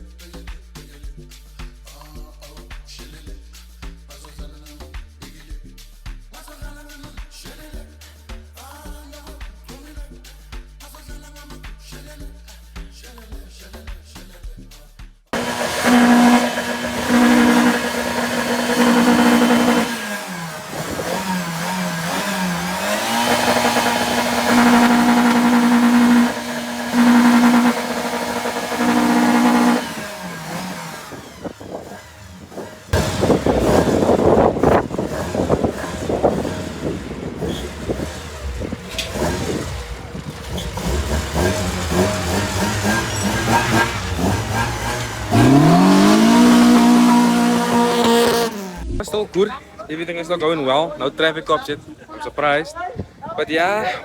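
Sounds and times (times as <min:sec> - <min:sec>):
car engine revving: 0:15.4 - 0:49.0
crackling exhaust: 0:15.4 - 0:49.1.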